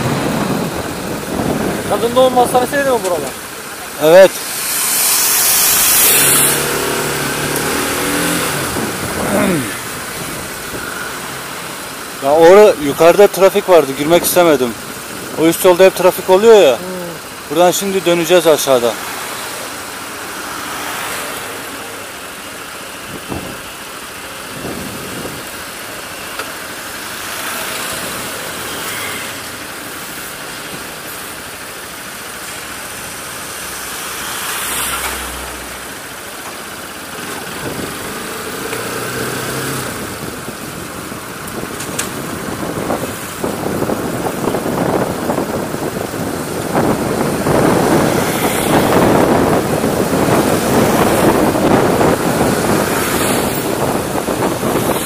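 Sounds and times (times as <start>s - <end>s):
wind rush on microphone: 0.0s - 3.4s, 4.2s - 11.2s, 23.0s - 23.7s, 24.4s - 25.7s, 37.4s - 38.2s, 39.8s - 55.0s.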